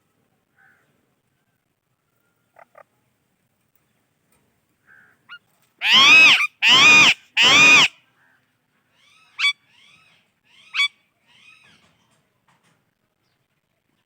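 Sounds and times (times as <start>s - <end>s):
parakeet squawking: 5.8s - 7.9s.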